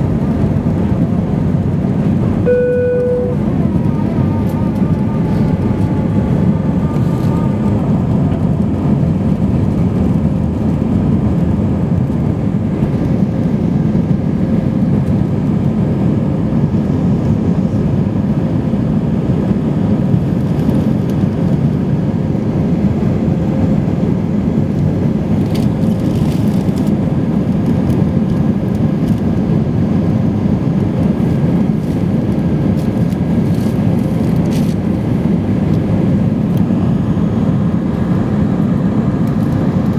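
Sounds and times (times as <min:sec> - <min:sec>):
faint steady hum: 0:00.0 - 0:09.6
aircraft cabin engine roar: 0:00.0 - 0:39.9.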